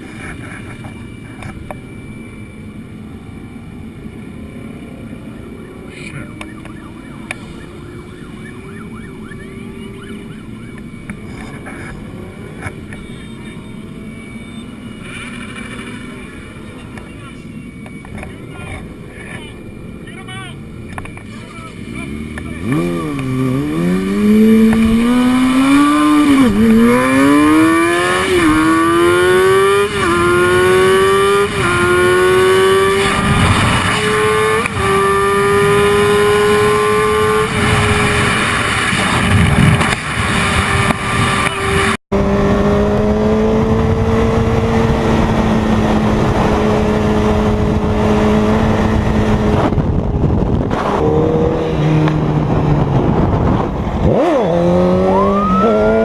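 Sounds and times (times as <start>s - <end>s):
motorcycle engine accelerating: 0.0s - 17.0s, 20.9s - 56.0s
engine running steadily: 0.0s - 56.0s.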